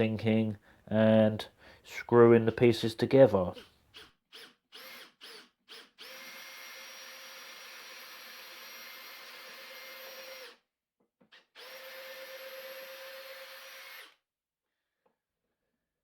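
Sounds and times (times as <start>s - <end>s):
power drill running: 3.6s - 10.6s, 11.3s - 14.2s.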